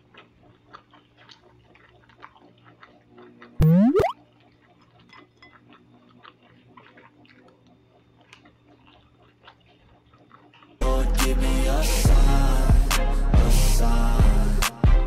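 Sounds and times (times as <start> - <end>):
faint chewing: 0.0 - 3.6, 4.2 - 11.0.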